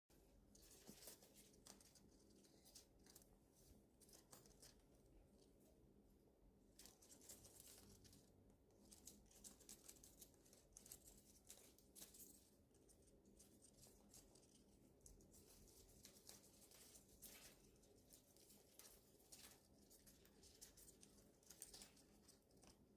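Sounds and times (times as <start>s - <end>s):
leaves rustling and tearing: 8.8s - 12.4s, 15.4s - 22.7s.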